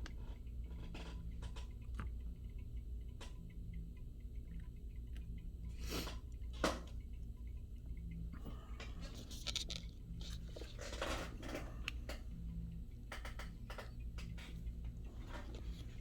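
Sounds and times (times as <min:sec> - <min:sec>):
steady low hum: 0:00.0 - 0:16.0
small objects clicking and scraping: 0:09.0 - 0:11.6.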